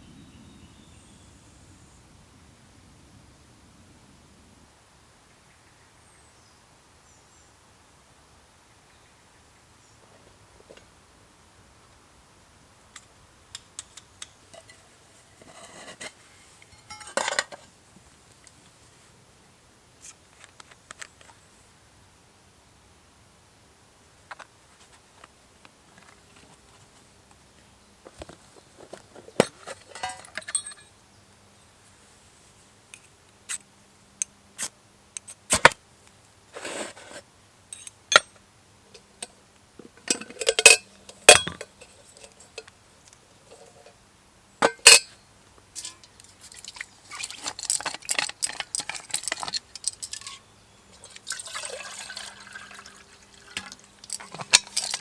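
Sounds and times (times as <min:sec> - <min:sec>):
cookware clinking and knocking: 0:16.8 - 0:17.6, 0:40.1 - 0:41.7
utensils rattling and rustling: 0:28.8 - 0:30.9, 0:45.8 - 0:50.4, 0:53.5 - 0:55.0.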